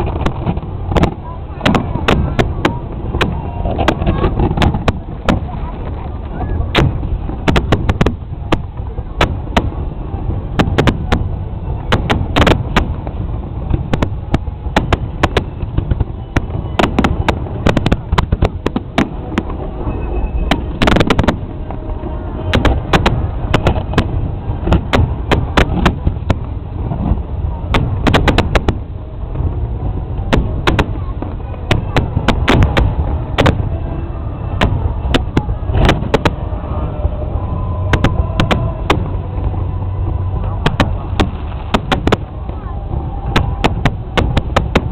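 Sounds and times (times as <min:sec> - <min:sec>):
fireworks bangs: 0:00.0 - 0:44.9
low rumble: 0:00.0 - 0:44.9.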